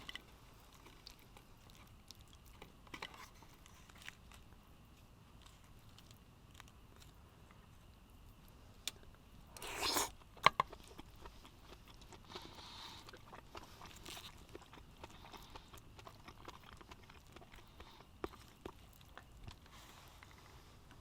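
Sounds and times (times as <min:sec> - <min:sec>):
faint chewing: 0:00.0 - 0:21.0
crunchy bite: 0:08.8 - 0:19.6.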